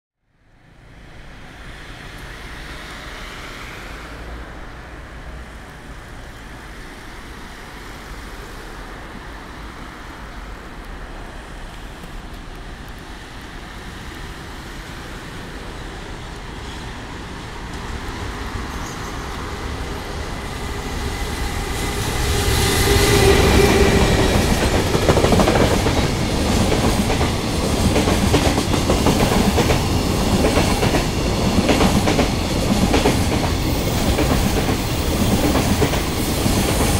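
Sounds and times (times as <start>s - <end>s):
locomotive approaching: 1.6s - 36.9s
locomotive whine: 17.7s - 36.9s.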